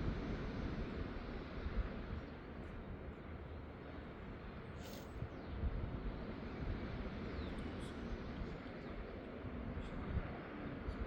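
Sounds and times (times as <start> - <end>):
low rumble of wind: 0.0 - 11.0.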